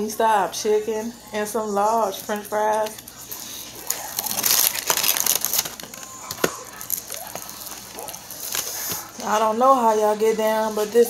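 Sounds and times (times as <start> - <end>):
chewing crispy fried chicken: 2.2 - 9.5.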